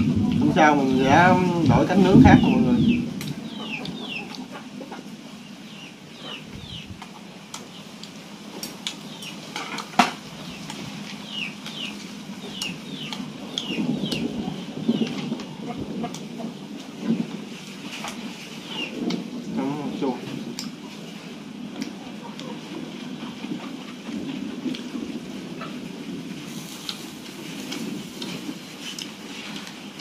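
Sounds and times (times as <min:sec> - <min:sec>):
bird chirping: 0:00.6 - 0:04.6, 0:05.4 - 0:07.0, 0:10.4 - 0:15.2.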